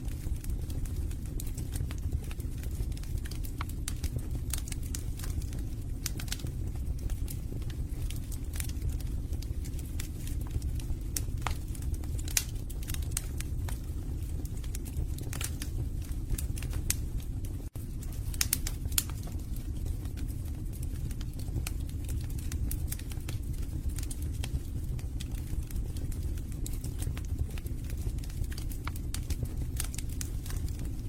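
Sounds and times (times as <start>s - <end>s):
burning logs crackling and popping: 0.0s - 31.0s
fire rumbling: 0.0s - 31.0s.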